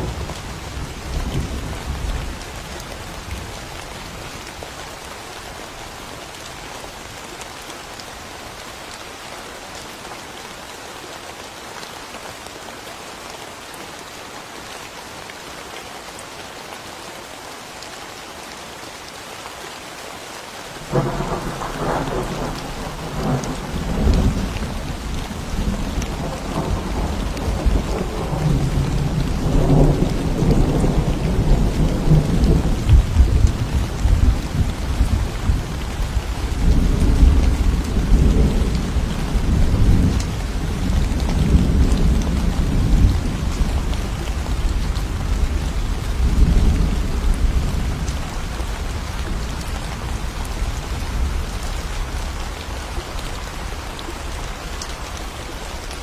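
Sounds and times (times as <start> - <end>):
steady rain: 0.0 - 56.0
thunder rumbling: 20.8 - 50.4.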